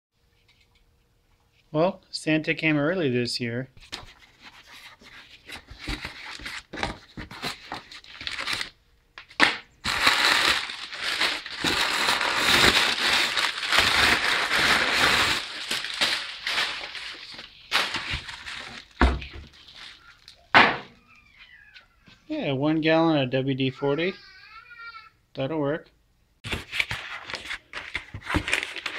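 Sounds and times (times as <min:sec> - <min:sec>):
packing material crinkling: 0:04.0 - 0:20.6, 0:26.4 - 0:28.9.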